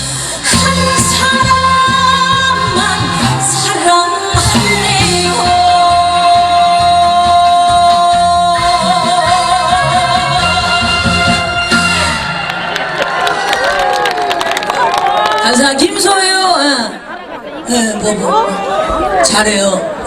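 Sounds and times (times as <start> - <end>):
woman singing: 0.0 - 11.7
backing band: 0.0 - 15.0.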